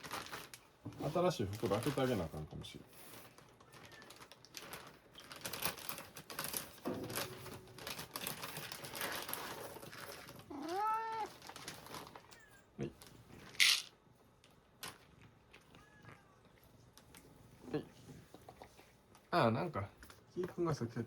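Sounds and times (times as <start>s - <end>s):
plastic bag crinkling: 0.0s - 15.7s
cat meowing: 10.5s - 11.4s, 15.6s - 16.6s.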